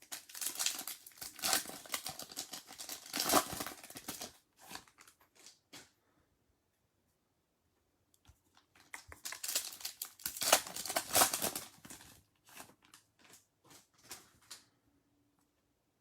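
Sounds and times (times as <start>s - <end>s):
foil wrapper tearing and crinkling: 0.0s - 5.6s, 8.9s - 13.1s.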